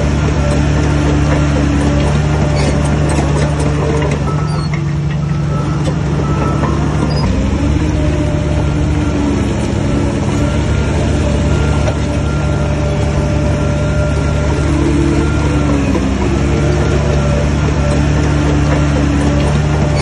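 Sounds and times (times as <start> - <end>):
heavy diesel engine under load: 0.0 - 20.0.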